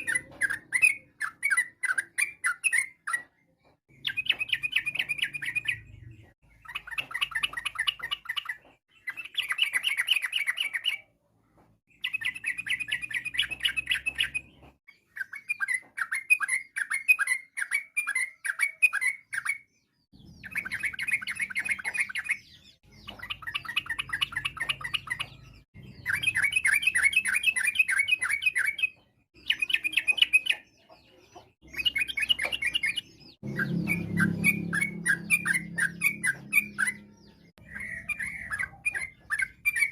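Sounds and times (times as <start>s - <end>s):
bird bubbling chatter song: 31.6s - 39.9s.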